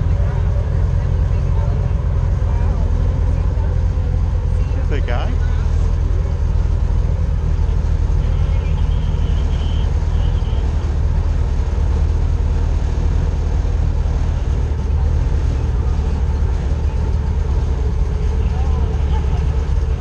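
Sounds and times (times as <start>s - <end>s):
airboat engine and propeller drone: 0.0s - 20.0s.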